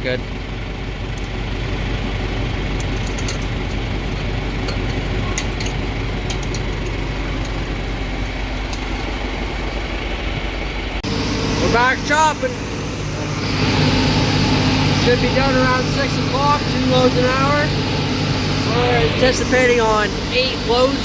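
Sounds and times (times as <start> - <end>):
tractor engine running: 0.0 - 21.0
forage blower: 11.0 - 21.0.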